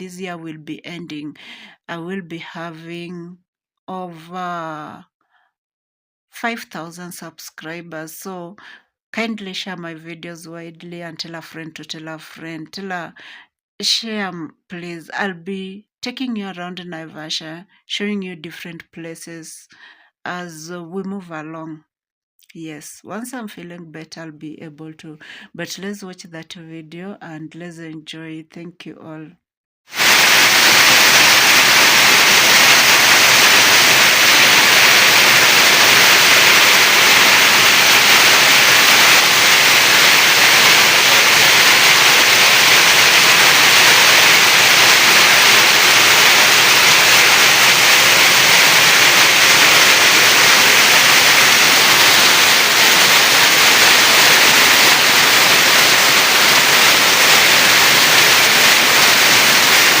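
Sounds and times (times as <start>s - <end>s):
heavy rain heard indoors: 29.9s - 60.0s.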